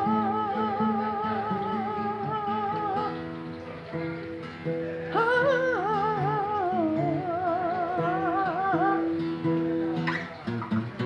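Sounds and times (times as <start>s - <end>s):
wordless singing with vibrato: 0.0s - 3.3s, 5.2s - 9.3s
acoustic guitar picked notes: 0.0s - 11.0s.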